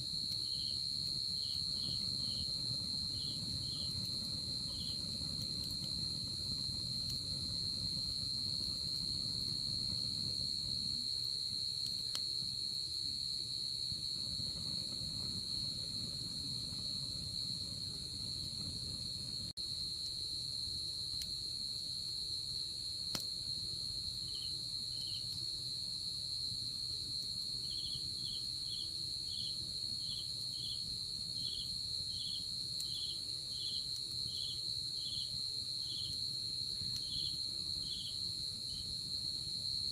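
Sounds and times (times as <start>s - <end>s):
insect chirping in pulses: 0.0s - 19.4s, 31.4s - 39.8s
wood fire burning: 0.0s - 22.0s, 22.6s - 25.6s, 26.7s - 39.5s.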